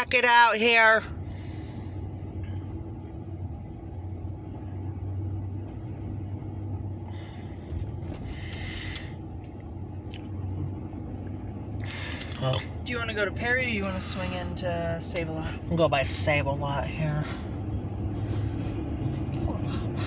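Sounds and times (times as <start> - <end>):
low engine rumble: 0.0 - 20.0.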